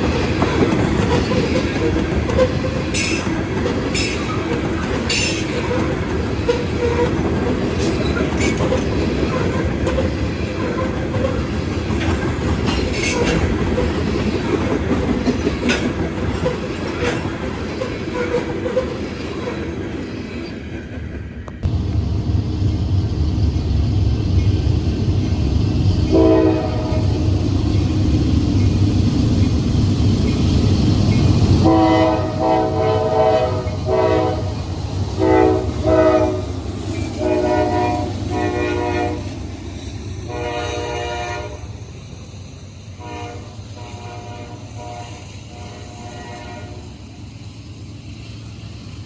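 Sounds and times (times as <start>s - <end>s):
diesel locomotives rumbling: 0.0s - 49.0s
train horn blasts: 26.1s - 27.3s, 31.6s - 34.6s, 35.2s - 36.5s, 37.1s - 39.4s, 40.3s - 41.7s, 43.0s - 47.0s.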